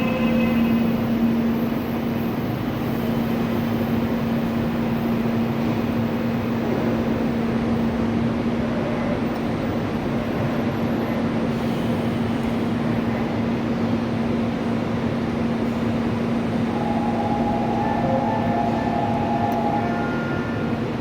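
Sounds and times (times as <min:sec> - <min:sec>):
electric train rumble: 0:00.0 - 0:21.0
high whining tones: 0:16.5 - 0:21.0.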